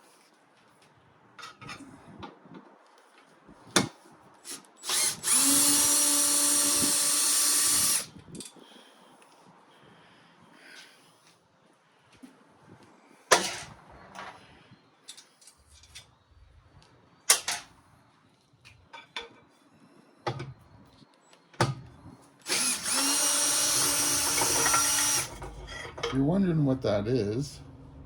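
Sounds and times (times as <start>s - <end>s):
power drill running: 4.5s - 8.1s, 22.4s - 25.4s
metallic clanks of tools: 24.4s - 26.2s.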